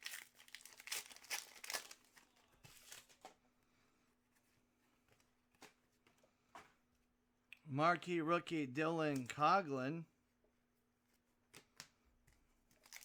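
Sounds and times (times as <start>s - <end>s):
foil wrappers crinkling and tearing: 0.0s - 3.2s, 12.7s - 13.0s.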